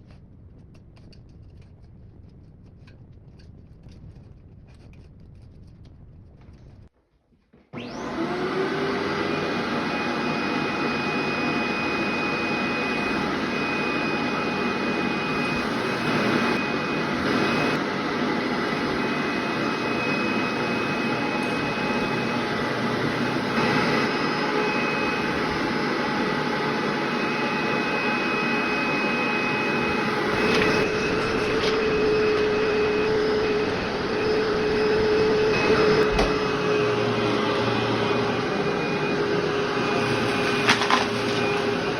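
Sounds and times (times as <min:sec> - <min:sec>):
vacuum cleaner whining: 0:07.6 - 0:41.9.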